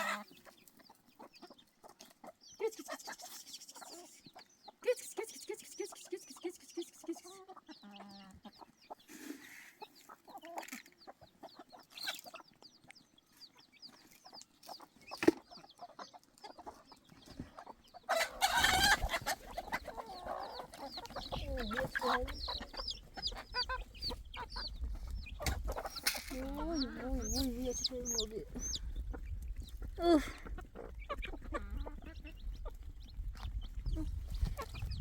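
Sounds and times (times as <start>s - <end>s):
chickens clucking: 0.0s - 35.0s.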